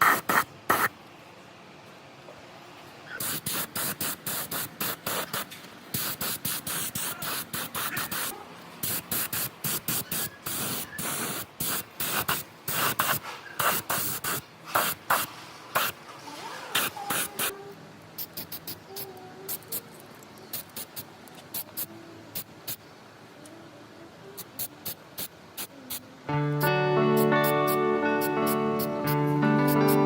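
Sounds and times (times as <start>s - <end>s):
short hissing spray bursts: 0.0s - 1.0s, 3.2s - 17.5s, 18.2s - 22.9s, 24.4s - 30.0s.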